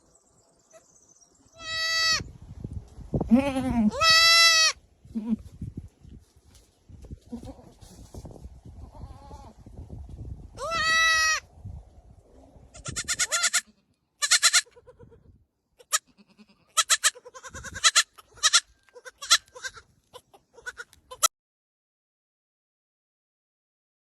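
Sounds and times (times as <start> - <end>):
goats bleating: 12.8 - 15.1, 15.8 - 21.3.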